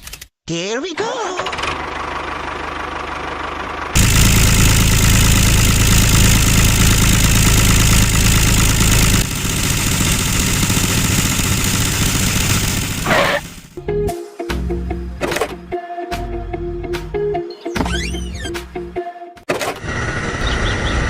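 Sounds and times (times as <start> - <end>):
small tractor motor humming: 1.4 - 13.8.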